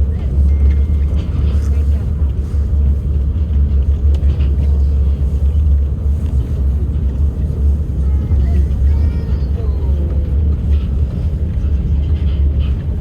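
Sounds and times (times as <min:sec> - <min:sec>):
monorail train low rumble: 0:00.0 - 0:13.0.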